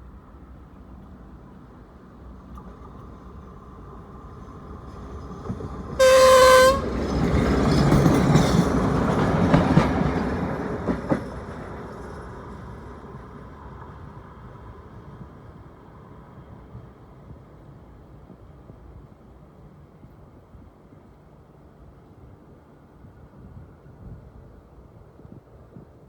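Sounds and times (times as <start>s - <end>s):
train rumbling and wheel clatter: 0.0s - 26.0s
train horn blast: 6.0s - 7.1s.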